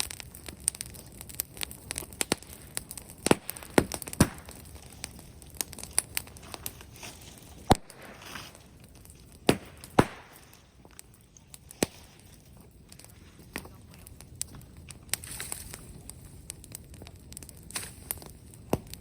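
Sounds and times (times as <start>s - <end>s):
loud sharp pops: 0.0s - 12.3s
bonfire crackling: 0.0s - 19.0s.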